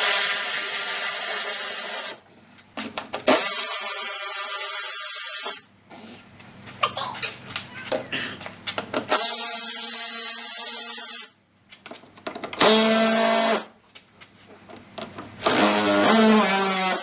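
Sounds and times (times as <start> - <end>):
cordless power tool whining: 15.4 - 17.0.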